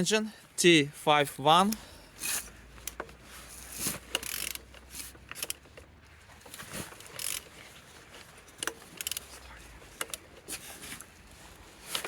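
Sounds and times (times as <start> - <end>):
engine turned by wrench clicking: 1.7 - 7.6, 8.4 - 10.5.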